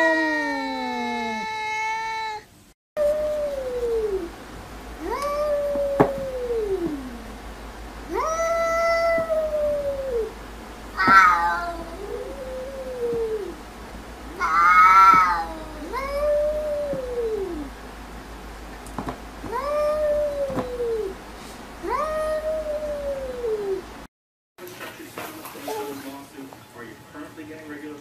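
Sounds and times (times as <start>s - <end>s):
cats yowling: 0.0s - 4.3s, 5.0s - 7.3s, 8.1s - 10.4s, 11.0s - 13.6s, 14.3s - 17.7s, 19.5s - 21.2s, 21.8s - 23.9s.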